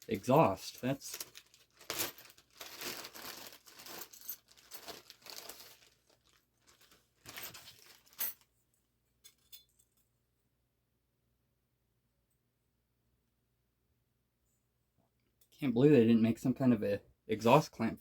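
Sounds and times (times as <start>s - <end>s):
crinkling rustling handling noise: 0.0s - 8.5s.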